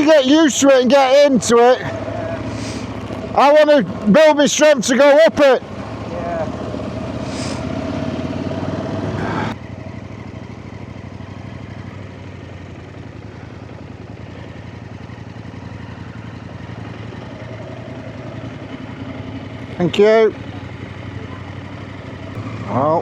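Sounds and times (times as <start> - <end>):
motorcycle engines idling: 0.0 - 23.0.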